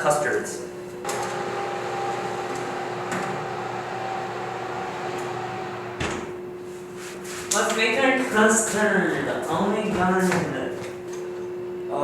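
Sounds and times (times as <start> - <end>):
appliance motor humming: 1.0 - 6.4.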